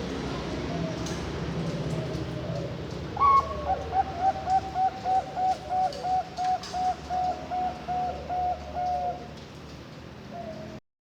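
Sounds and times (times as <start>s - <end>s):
dove cooing: 1.8s - 9.3s.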